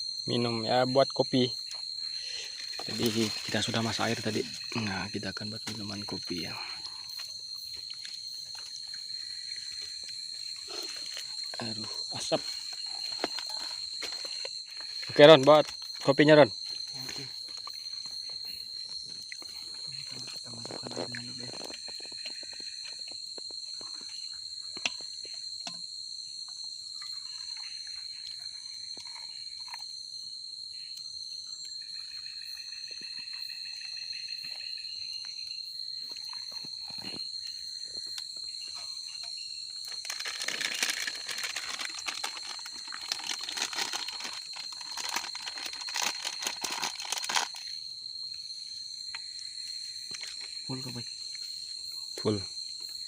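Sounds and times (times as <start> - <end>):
insects chirring: 0.0 - 53.0
rustling crinkling noise: 2.6 - 3.6, 39.9 - 47.6.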